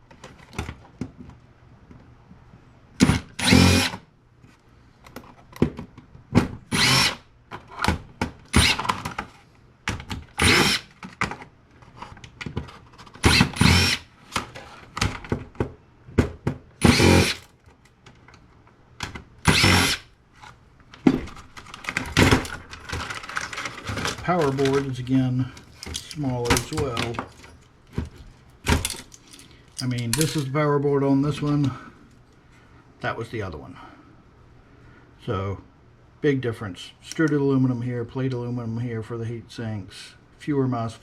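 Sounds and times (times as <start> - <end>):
cordless power driver bursts: 3.0 - 4.0, 6.7 - 7.3, 8.5 - 9.0, 10.4 - 10.9, 13.2 - 14.1, 16.8 - 17.4, 19.4 - 20.1.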